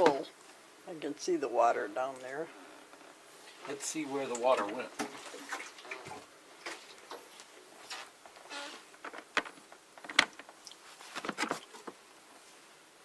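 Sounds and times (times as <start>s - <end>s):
plastic clicks and knocks: 9.0s - 10.5s.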